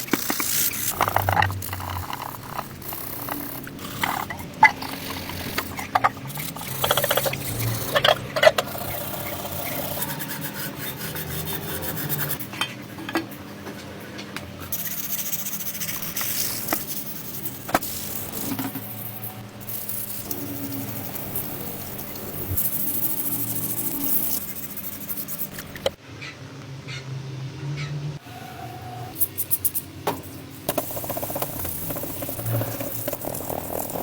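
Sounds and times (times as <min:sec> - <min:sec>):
hand scraping engine parts: 0:00.0 - 0:13.1, 0:30.7 - 0:34.0.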